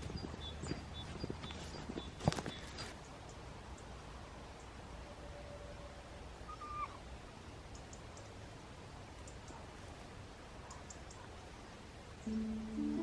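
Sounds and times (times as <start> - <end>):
faint outdoor ambience: 0.0 - 13.0
soft high-pitched ticks: 7.6 - 8.4, 9.1 - 11.3.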